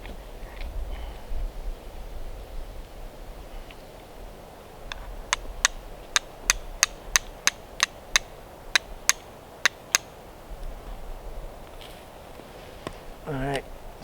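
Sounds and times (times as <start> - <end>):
flint and steel strikes: 4.9 - 10.1.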